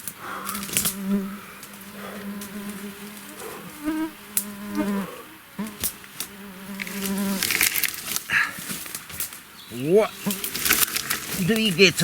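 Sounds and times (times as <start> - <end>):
fly buzzing: 0.0 - 8.1, 9.7 - 12.0.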